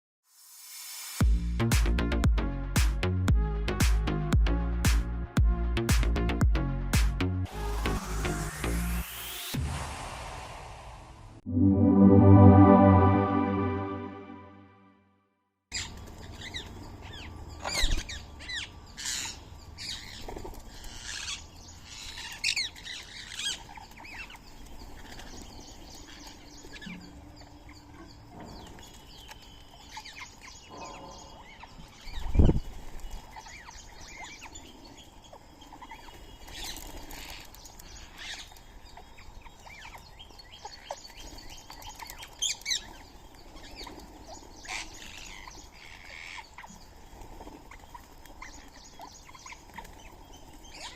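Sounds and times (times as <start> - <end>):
birds chirping: 15.8 - 50.9.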